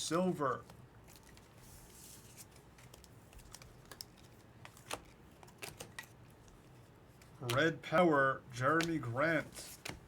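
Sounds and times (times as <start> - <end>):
trading cards sliding rustle: 0.6 - 6.2, 8.7 - 10.0.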